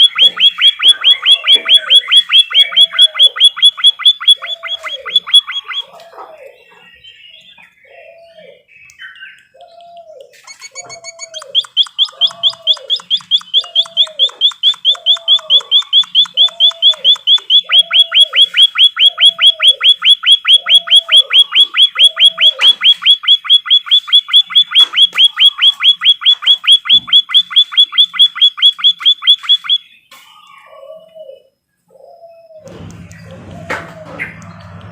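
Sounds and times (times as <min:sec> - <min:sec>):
songbird trilling: 0:00.0 - 0:30.8
low bird call: 0:00.0 - 0:34.9.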